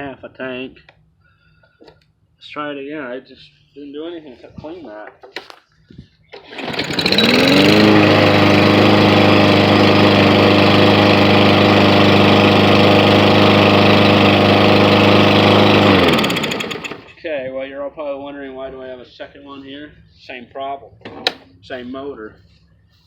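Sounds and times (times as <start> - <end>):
lawn mower engine starting: 6.3 - 17.2.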